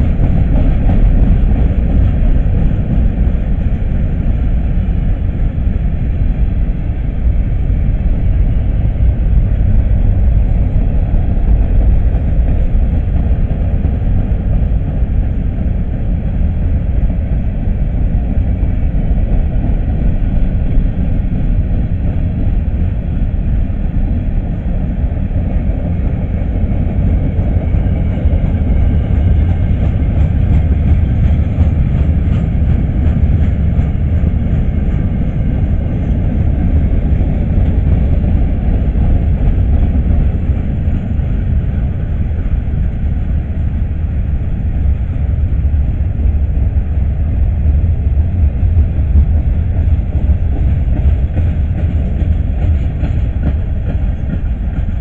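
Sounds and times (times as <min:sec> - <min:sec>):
freight train wheels rumbling on rails: 0:00.0 - 0:55.0.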